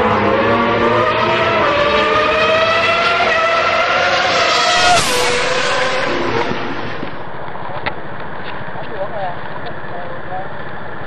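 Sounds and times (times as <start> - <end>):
motorcycle engine accelerating: 0.0 - 7.3.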